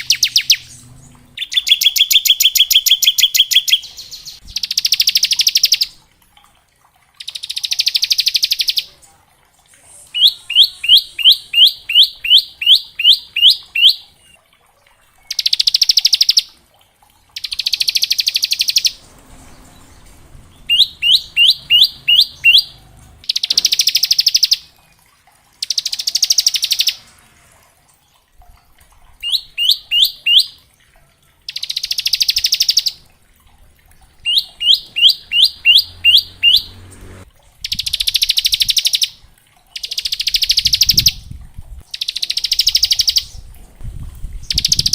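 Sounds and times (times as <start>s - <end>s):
bird chirping sharply: 0.0s - 6.0s, 10.1s - 14.4s, 17.4s - 24.7s, 29.2s - 30.6s, 34.2s - 39.2s.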